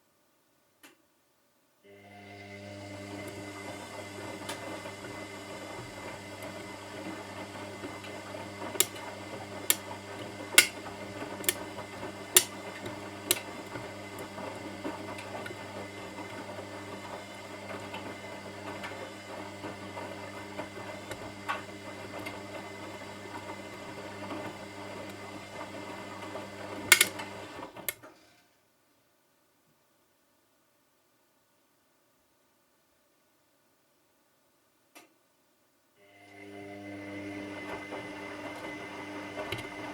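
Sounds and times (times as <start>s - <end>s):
washing machine running: 1.9s - 27.9s, 36.1s - 39.9s.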